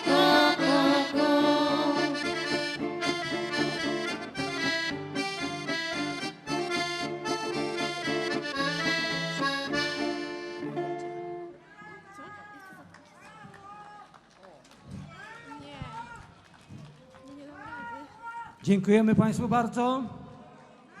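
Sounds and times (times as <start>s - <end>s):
folk band with accordion: 0.0s - 11.6s.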